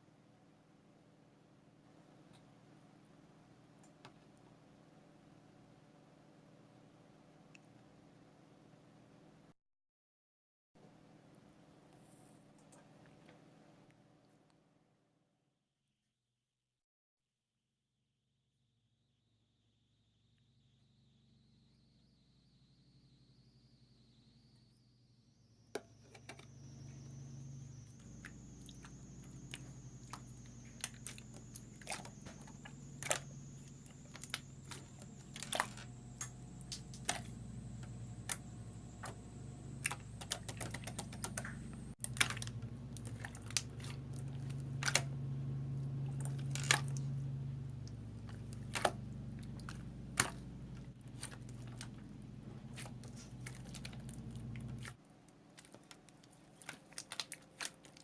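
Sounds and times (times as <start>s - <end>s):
steady low hum: 19.7s - 58.0s.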